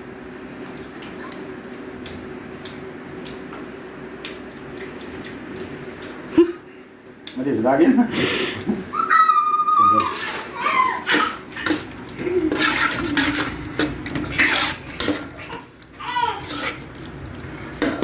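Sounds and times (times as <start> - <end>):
metal spoon scraping a pot: 12.4 - 15.7, 16.3 - 17.0.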